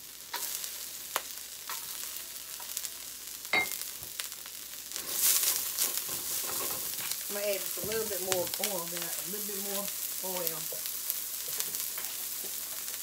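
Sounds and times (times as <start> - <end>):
onion sizzling in hot oil: 0.0 - 13.0
spatula stirring in wok: 0.2 - 3.4, 4.9 - 9.1.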